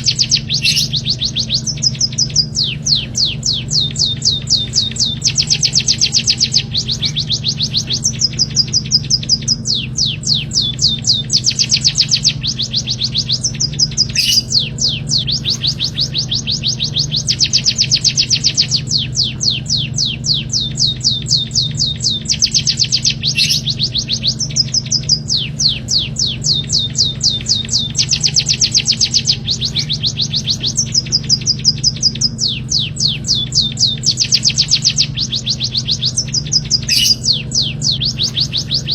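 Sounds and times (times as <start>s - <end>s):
low hum: 0.0s - 38.9s
songbird trilling: 0.0s - 38.9s.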